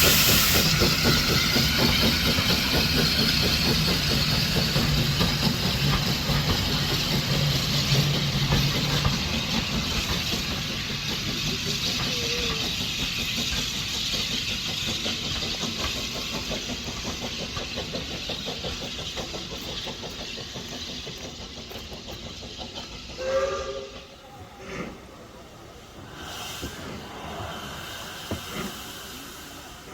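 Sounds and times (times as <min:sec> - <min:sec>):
steam train rumble and hiss: 0:00.0 - 0:29.9.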